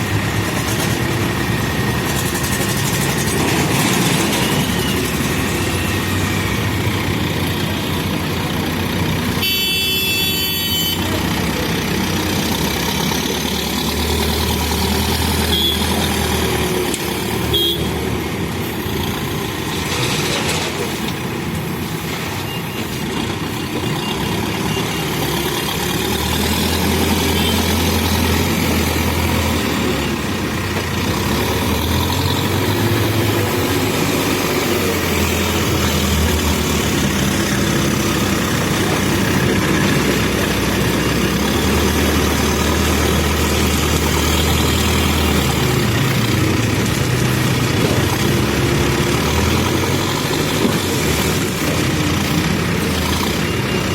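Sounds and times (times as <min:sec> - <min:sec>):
diesel engine revving: 0:00.0 - 0:09.7, 0:10.8 - 0:22.2, 0:23.1 - 0:53.9.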